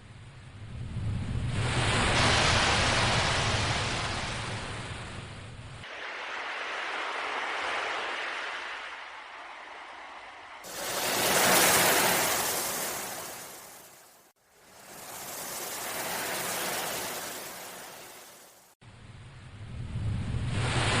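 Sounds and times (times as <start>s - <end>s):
sea waves washing: 1.5s - 5.2s, 5.9s - 18.8s
low rumble: 18.9s - 21.0s.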